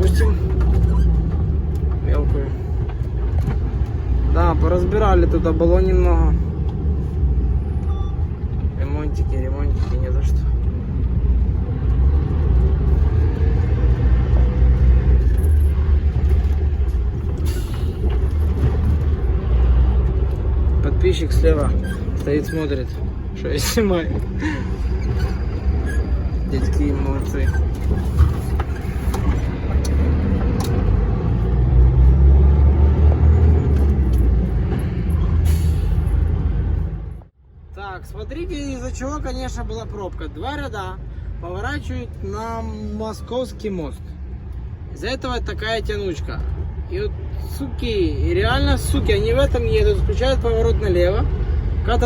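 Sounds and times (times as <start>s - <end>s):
truck diesel engine rumbling: 0.0s - 52.0s.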